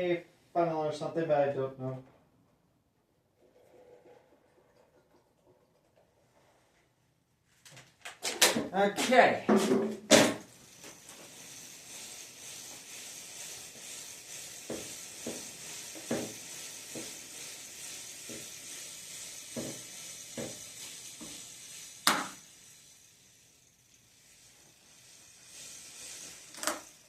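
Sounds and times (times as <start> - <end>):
aerosol spray hissing: 10.0 - 27.0.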